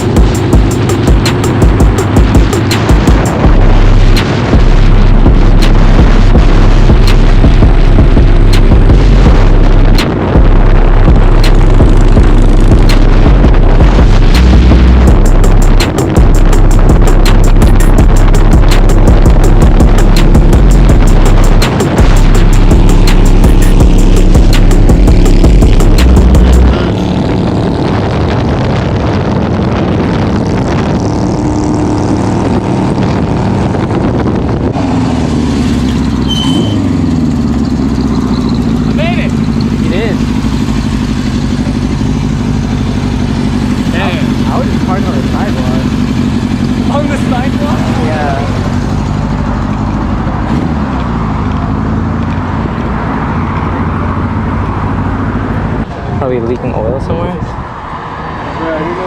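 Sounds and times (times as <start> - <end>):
motorcycle engine running: 0.0 - 57.9
short high beep: 36.2 - 36.9.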